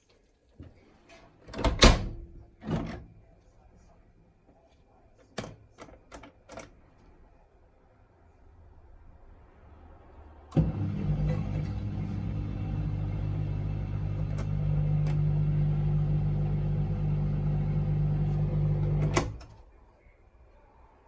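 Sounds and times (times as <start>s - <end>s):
dishwasher drain pump humming: 10.5s - 19.5s.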